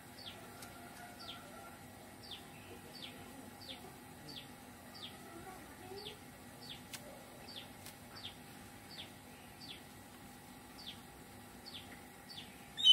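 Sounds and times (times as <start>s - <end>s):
bird chirping: 7.5s - 9.8s, 11.6s - 12.9s.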